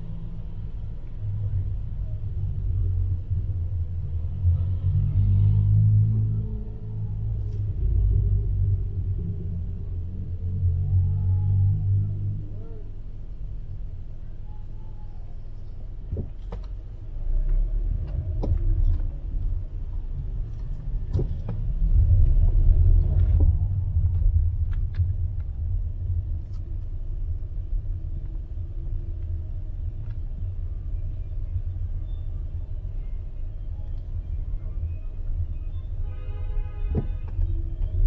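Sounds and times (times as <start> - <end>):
road traffic rumble: 0.0 - 38.0
vehicle passing by: 4.3 - 12.3.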